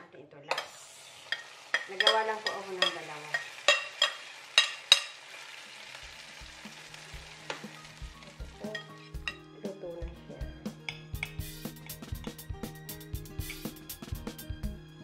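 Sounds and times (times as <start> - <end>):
egg mixture sizzling in pan: 0.5 - 9.5, 13.3 - 14.0
background music with steady beat: 6.3 - 15.0.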